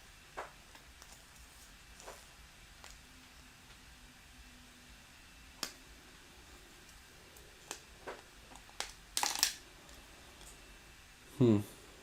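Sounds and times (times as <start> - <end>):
plastic bricks clicking: 8.6 - 9.6.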